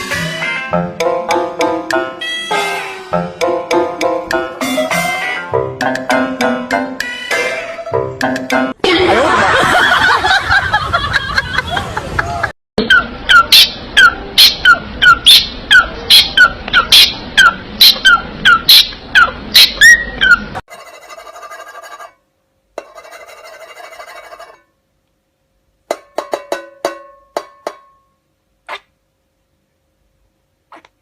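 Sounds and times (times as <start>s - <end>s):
parrot screeching: 7.0s - 8.0s.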